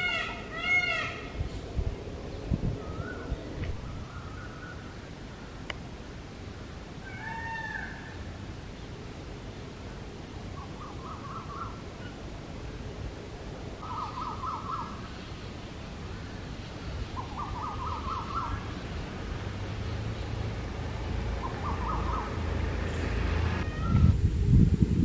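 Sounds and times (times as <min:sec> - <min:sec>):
bird calling rapid notes: 0:21.4 - 0:22.4.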